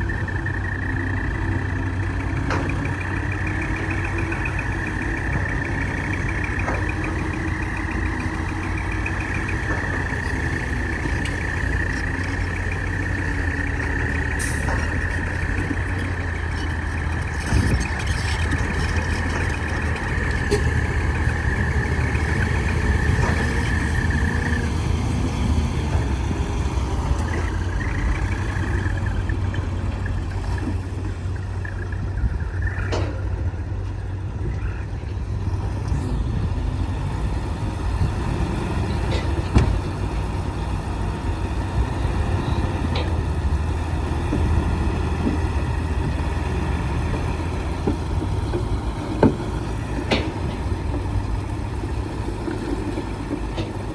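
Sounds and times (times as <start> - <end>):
heavy diesel engine running: 0.0 - 53.9.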